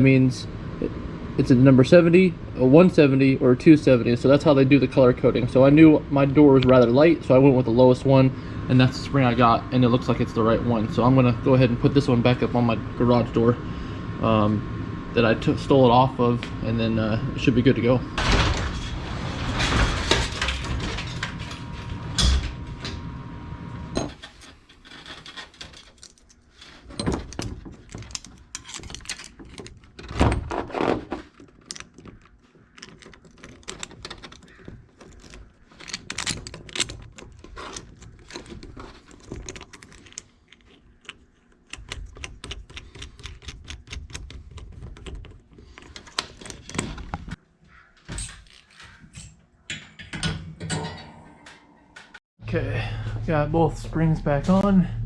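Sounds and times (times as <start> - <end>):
metal hardware clinking: 25.3 - 30.4, 31.2 - 47.4, 48.1 - 51.7.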